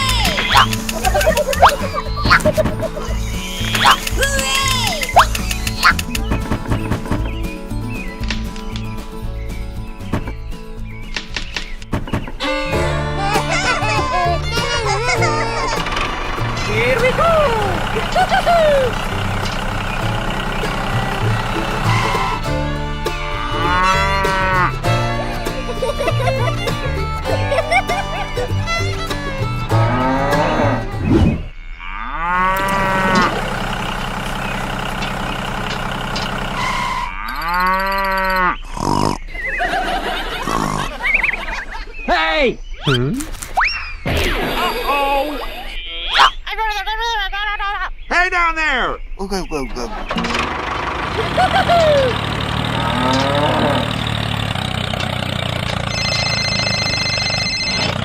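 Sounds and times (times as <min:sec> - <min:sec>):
squeaky voice-like calls: 0:00.0 - 0:06.2, 0:42.8 - 0:46.5
tractor engine idling: 0:00.0 - 0:11.8, 0:12.4 - 0:30.2, 0:32.5 - 0:37.7, 0:49.2 - 0:58.0
music: 0:00.0 - 0:17.8, 0:19.2 - 0:31.3
cow mooing: 0:23.3 - 0:24.9, 0:29.7 - 0:33.6, 0:36.7 - 0:39.1, 0:52.7 - 0:54.2.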